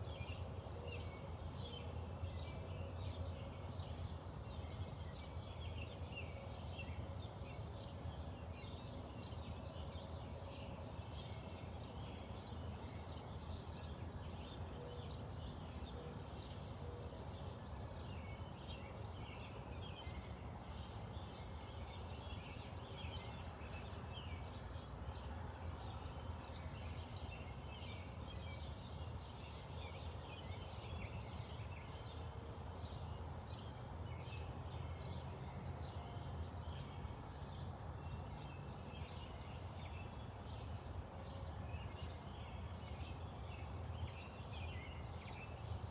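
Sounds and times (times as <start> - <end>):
wild birds chirping and singing: 0.0 - 45.9.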